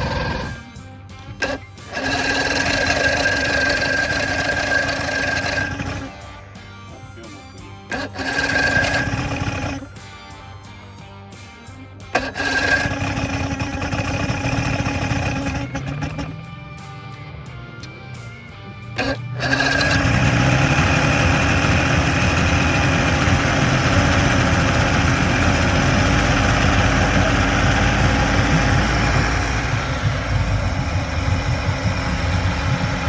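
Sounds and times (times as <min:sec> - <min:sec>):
outboard motor idling: 0:00.0 - 0:06.5, 0:07.8 - 0:10.3, 0:12.0 - 0:16.5, 0:19.0 - 0:33.0.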